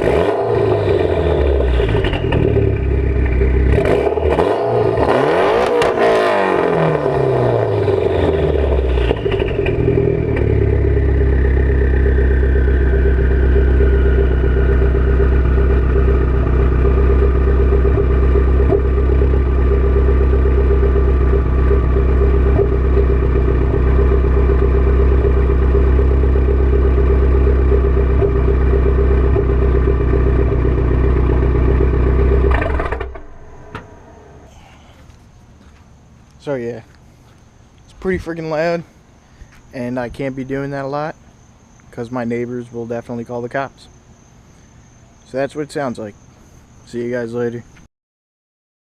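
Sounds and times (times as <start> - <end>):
high whine: 0.0 - 36.9
car engine idling deep drone: 0.0 - 47.8.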